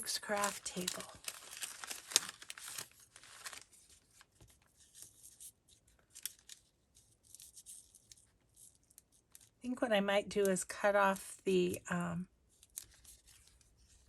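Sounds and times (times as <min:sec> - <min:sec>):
paper rustling and crinkling: 0:00.0 - 0:09.6, 0:12.5 - 0:14.0.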